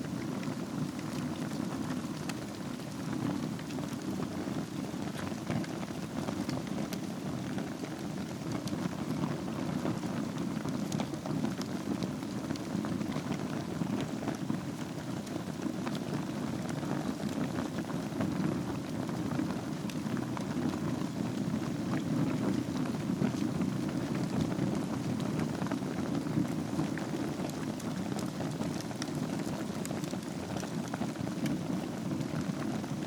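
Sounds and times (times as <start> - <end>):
wood fire burning and crackling: 0.0 - 33.0.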